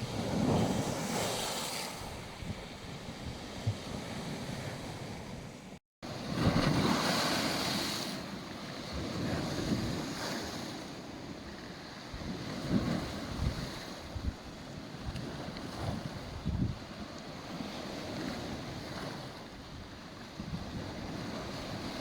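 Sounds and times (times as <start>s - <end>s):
wind buffeting microphone: 0.0s - 7.1s, 11.5s - 22.0s
waves washing onto beach: 0.0s - 22.0s.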